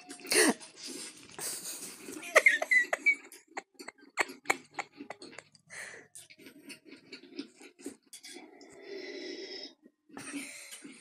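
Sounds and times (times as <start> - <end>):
chewing and lip-smacking: 3.0 - 8.8.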